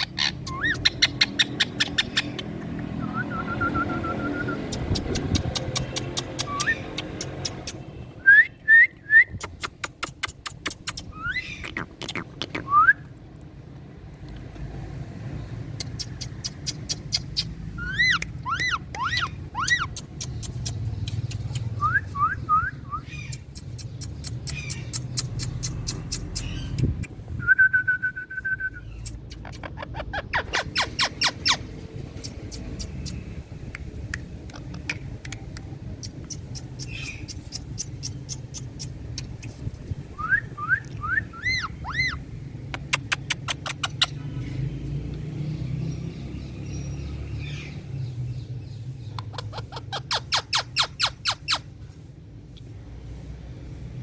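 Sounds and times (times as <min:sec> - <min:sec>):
parakeet chirps and whistle: 0:00.0 - 0:07.8, 0:09.3 - 0:13.0, 0:15.8 - 0:27.2, 0:28.6 - 0:33.2, 0:36.0 - 0:39.6, 0:40.2 - 0:44.2, 0:49.1 - 0:51.7
parakeet sharp clicks: 0:00.3 - 0:03.0, 0:04.5 - 0:07.8, 0:09.4 - 0:12.7, 0:15.7 - 0:21.8, 0:23.2 - 0:27.2, 0:32.1 - 0:39.7, 0:42.7 - 0:44.2.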